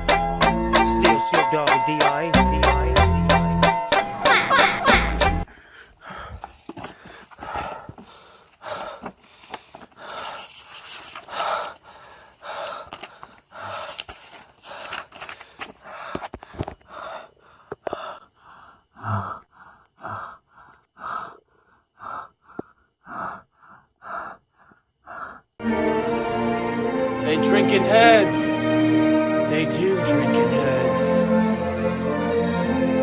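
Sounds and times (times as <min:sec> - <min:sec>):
rapid gasping breaths: 0:05.5 - 0:25.6.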